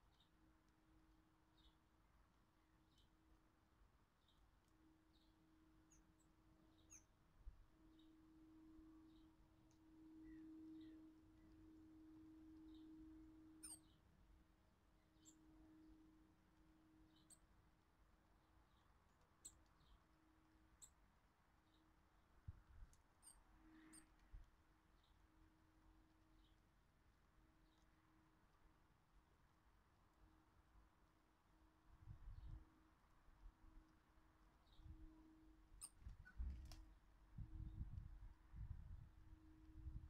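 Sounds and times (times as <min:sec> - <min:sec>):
faint steady hum: 0:00.0 - 0:40.0
small birds chirping: 0:04.2 - 0:07.2, 0:09.0 - 0:11.8, 0:12.4 - 0:14.1, 0:15.1 - 0:15.6, 0:18.5 - 0:20.1, 0:20.8 - 0:22.0
bird chirp: 0:05.1 - 0:07.2, 0:07.8 - 0:14.1, 0:15.1 - 0:15.8, 0:17.0 - 0:17.5, 0:34.6 - 0:36.5.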